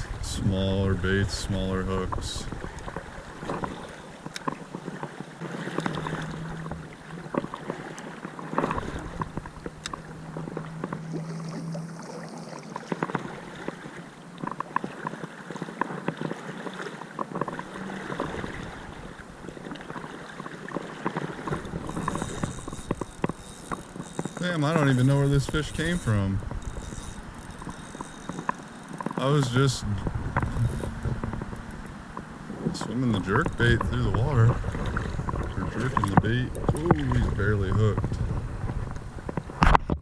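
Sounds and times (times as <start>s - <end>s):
creek water running: 0.0s - 39.9s
small clicks and knocks: 2.0s - 11.1s, 14.4s - 16.4s, 17.1s - 17.6s, 21.0s - 29.6s, 30.3s - 38.2s.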